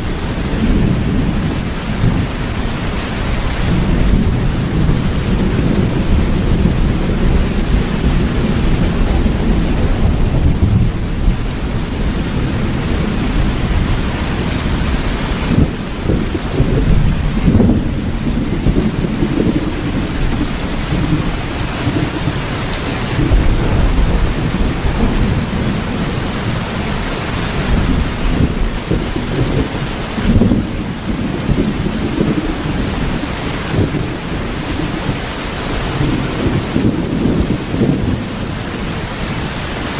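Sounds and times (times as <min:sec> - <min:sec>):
heavy rain falling: 0:00.0 - 0:39.9
low rumble: 0:23.0 - 0:26.9.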